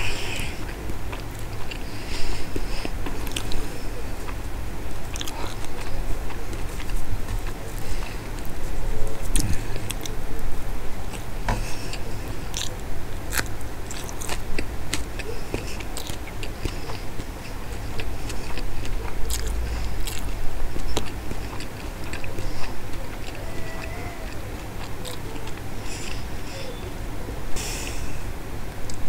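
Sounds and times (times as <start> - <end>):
wet chewing mouth clicks: 0.2 - 4.4, 5.0 - 8.5, 11.1 - 26.3
lip smacks: 0.3 - 4.4, 5.1 - 8.5, 11.1 - 26.3.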